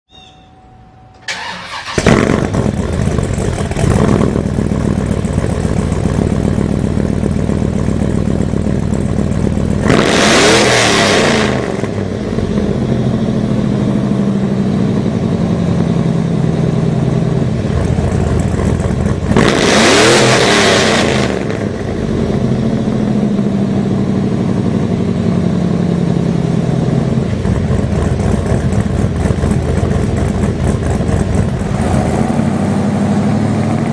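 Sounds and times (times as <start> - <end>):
engine cranking and starting: 1.2 - 4.7
engine idling and revving: 1.3 - 33.9.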